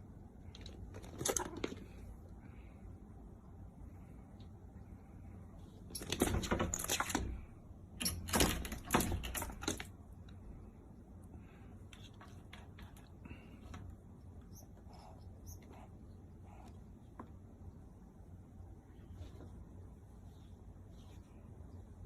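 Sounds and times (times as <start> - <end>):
screen door rattling: 6.0 - 9.9.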